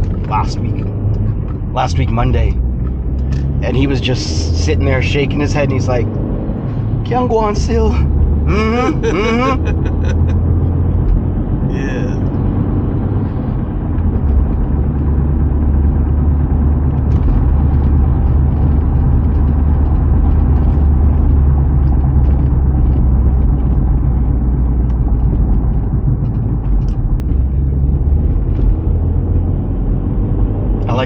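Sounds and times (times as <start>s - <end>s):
car engine and road drone: 0.0s - 31.0s.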